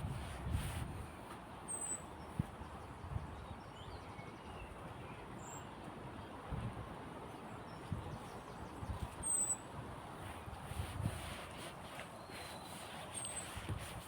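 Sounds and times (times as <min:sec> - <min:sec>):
outdoor background rush: 0:00.0 - 0:14.0
bird chirps: 0:09.2 - 0:09.6.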